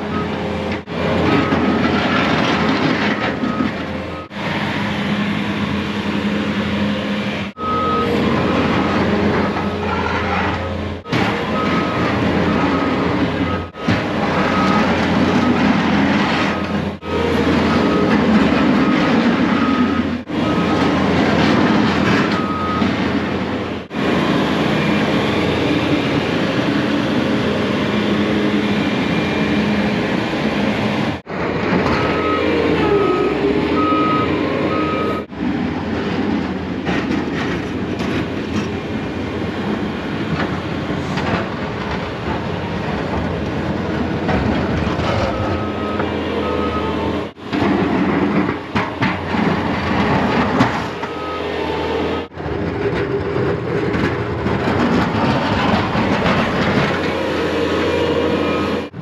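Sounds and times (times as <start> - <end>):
reversing alarm beeping: 0.0 - 4.4, 5.1 - 30.8, 31.7 - 35.3, 44.9 - 48.3, 49.3 - 52.3, 57.0 - 59.0
snow plow engine running: 0.0 - 59.0.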